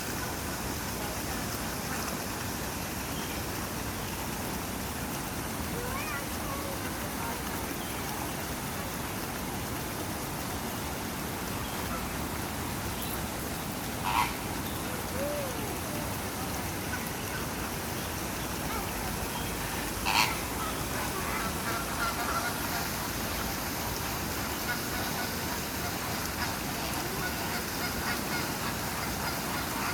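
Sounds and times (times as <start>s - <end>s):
waterbirds calling: 10.2s - 29.9s.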